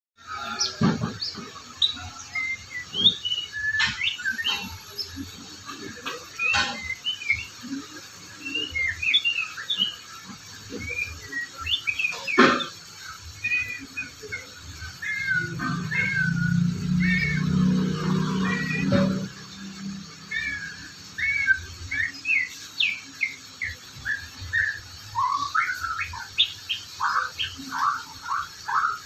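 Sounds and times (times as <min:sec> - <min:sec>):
bird singing whistles and chirps: 0:00.2 - 0:29.0.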